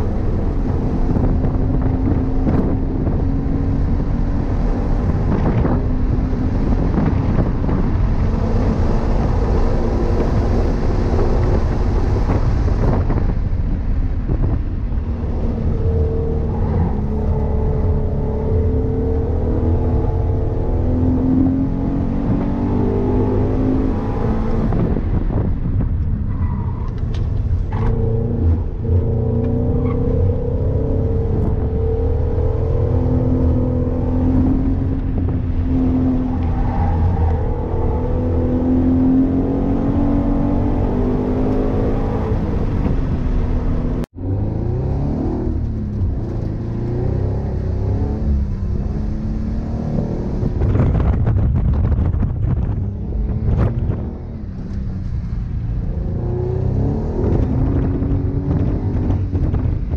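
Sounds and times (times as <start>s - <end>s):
road noise rumble: 0.0s - 59.9s
car engine revving: 26.7s - 59.9s.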